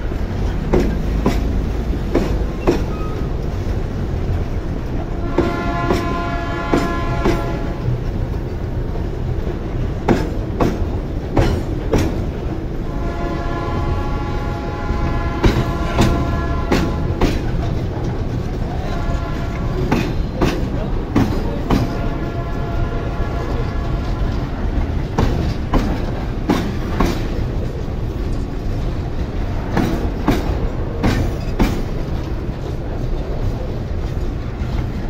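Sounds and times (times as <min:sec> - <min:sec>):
freight train rumbling past: 0:00.0 - 0:35.0
wheels clacking on rail joints: 0:00.0 - 0:35.0
train horn tone: 0:05.1 - 0:08.0, 0:12.8 - 0:17.5, 0:18.6 - 0:20.2, 0:21.7 - 0:24.9.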